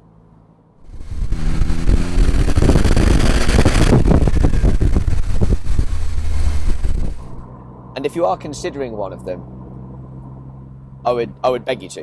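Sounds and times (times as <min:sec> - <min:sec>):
car engine pulling hard: 0:00.8 - 0:07.5
wind buffeting microphone: 0:00.8 - 0:07.5.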